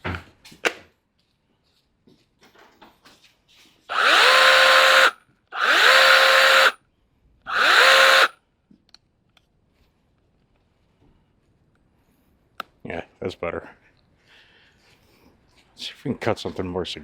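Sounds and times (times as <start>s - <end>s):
electric chainsaw whining: 3.9s - 6.8s, 7.5s - 8.3s.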